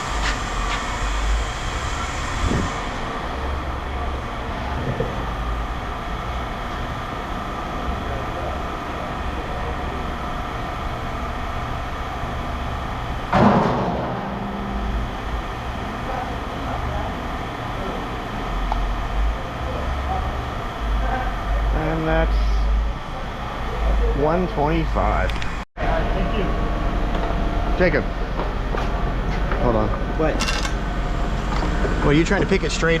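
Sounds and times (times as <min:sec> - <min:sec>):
heavy engine running: 0:00.0 - 0:33.0
loud metal clank: 0:13.3 - 0:14.9.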